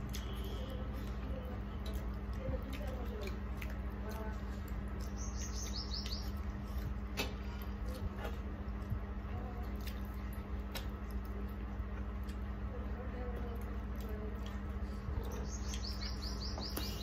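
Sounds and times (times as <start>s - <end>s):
steady low hum: 0.0s - 17.0s
small bird chirping: 5.0s - 6.8s, 15.2s - 17.0s.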